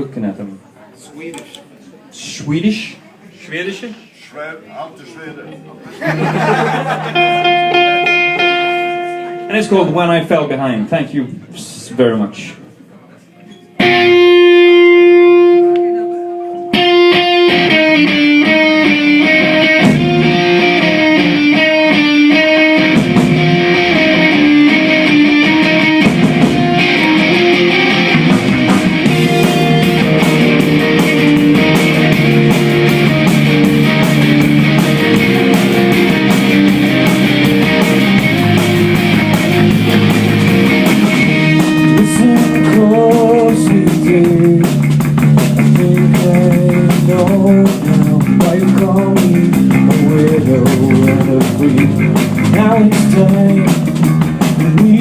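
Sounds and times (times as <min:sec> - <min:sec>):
guitar picking a repeated figure: 0:05.4 - 0:10.0, 0:13.5 - 0:55.0
bass guitar: 0:05.5 - 0:10.0, 0:13.7 - 0:55.0
drum kit: 0:13.8 - 0:15.8, 0:16.7 - 0:55.0.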